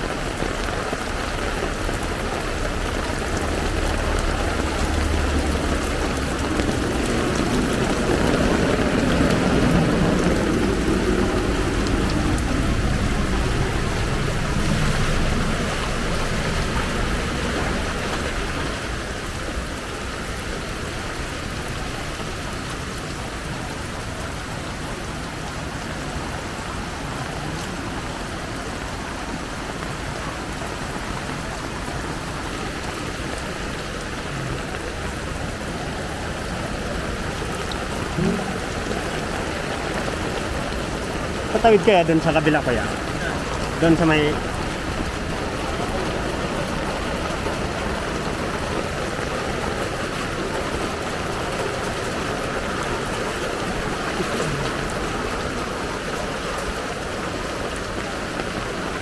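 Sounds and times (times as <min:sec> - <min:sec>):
floodwater flowing: 0:00.0 - 0:59.0
rain hissing on a street: 0:00.0 - 0:59.0.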